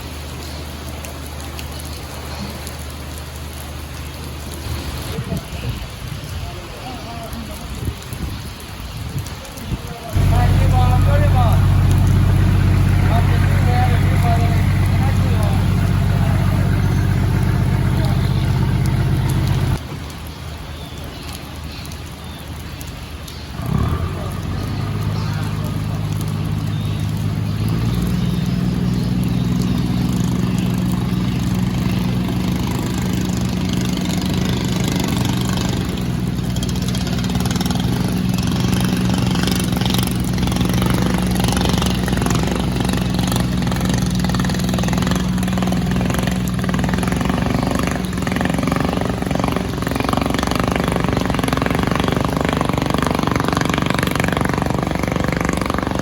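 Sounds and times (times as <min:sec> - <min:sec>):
boat engine running: 0:10.1 - 0:19.8, 0:23.6 - 0:56.0.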